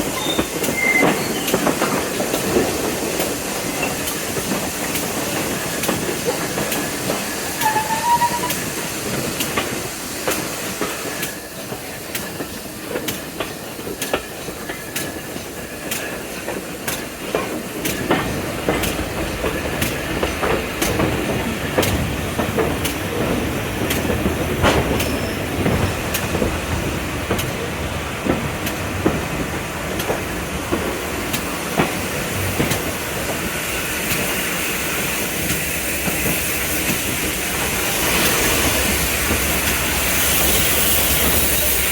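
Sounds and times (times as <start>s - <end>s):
train rumble: 0.0s - 41.9s
train wheels clicking on rails: 0.0s - 41.9s.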